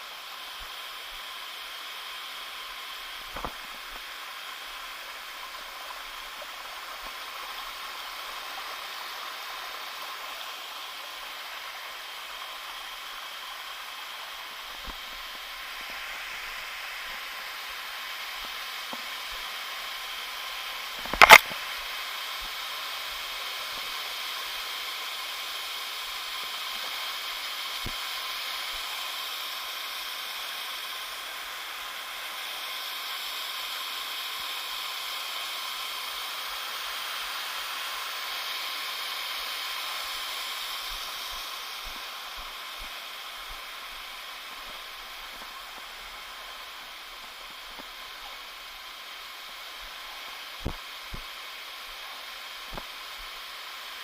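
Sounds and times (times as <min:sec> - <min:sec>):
waterfall stream rushing: 0:00.0 - 0:54.0
sharp click: 0:21.0 - 0:21.6.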